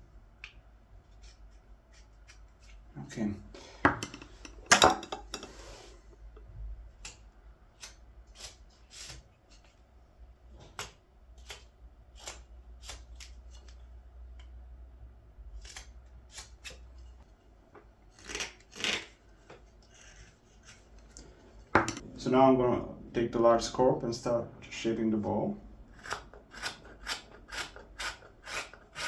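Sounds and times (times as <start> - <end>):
knife slicing wood: 10.8 - 13.8, 15.6 - 16.9.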